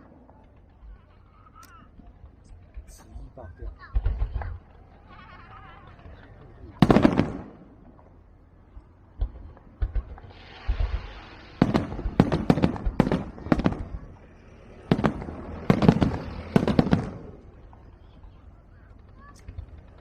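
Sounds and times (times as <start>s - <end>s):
fireworks bangs: 0.0s - 20.0s
fireworks crackling: 0.0s - 20.0s.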